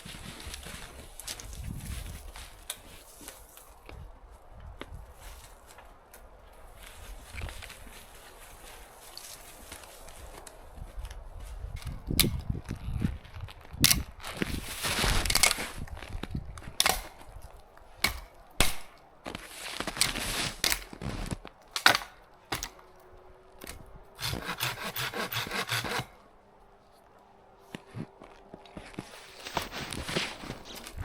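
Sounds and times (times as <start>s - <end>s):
hand saw cutting wood: 24.2s - 26.2s.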